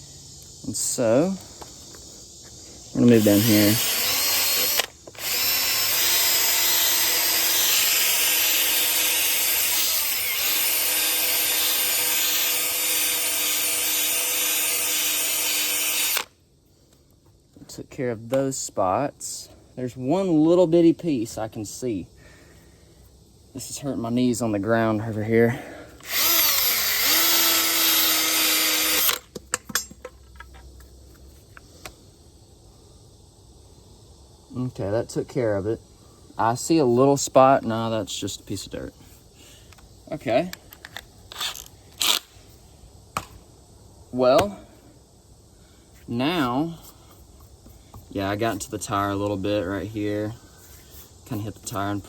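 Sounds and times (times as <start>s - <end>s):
sanding pad abrasive hiss: 0.8s - 16.3s
power drill motor whine: 3.1s - 16.3s, 26.0s - 29.2s.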